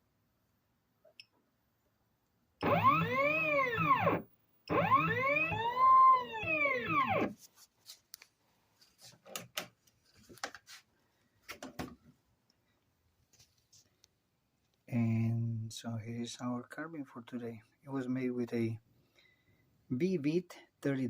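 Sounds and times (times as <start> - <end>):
stepper motors whining: 2.6 - 7.4.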